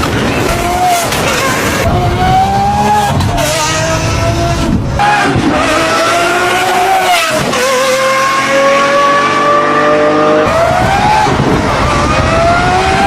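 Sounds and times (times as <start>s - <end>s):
car engine accelerating hard: 0.2s - 13.0s.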